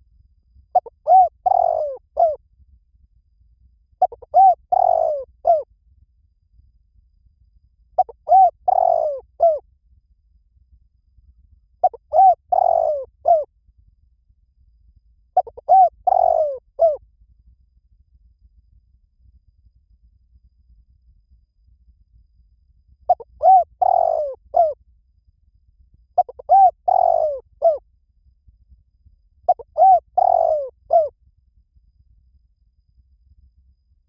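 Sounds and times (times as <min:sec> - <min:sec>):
dove cooing: 0:00.8 - 0:02.4, 0:04.0 - 0:05.6, 0:08.0 - 0:09.6, 0:11.8 - 0:13.5, 0:15.4 - 0:17.0, 0:23.1 - 0:24.8, 0:26.2 - 0:27.8, 0:29.5 - 0:31.1.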